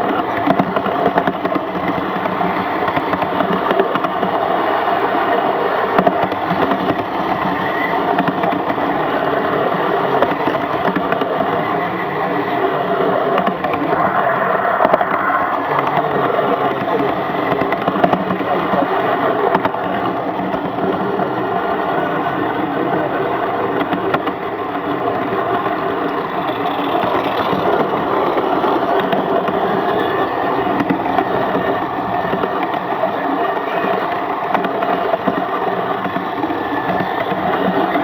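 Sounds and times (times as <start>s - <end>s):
model steam locomotive running: 13.7s - 38.0s.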